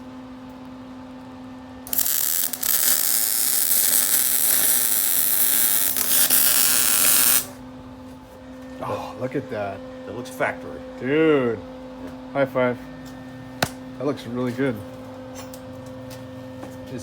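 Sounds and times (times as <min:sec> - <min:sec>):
steady low hum: 0:00.0 - 0:17.0
welder hissing: 0:01.9 - 0:07.6.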